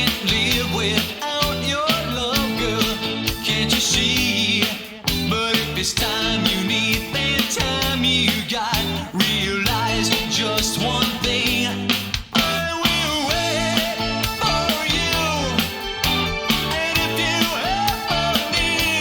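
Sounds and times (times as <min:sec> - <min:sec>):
rock band playing: 0:00.0 - 0:19.0
bending lead melody: 0:09.7 - 0:19.0.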